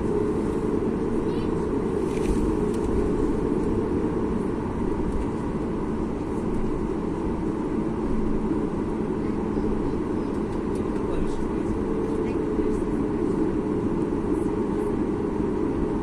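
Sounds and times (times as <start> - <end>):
jet engines humming in cabin: 0.0 - 16.0.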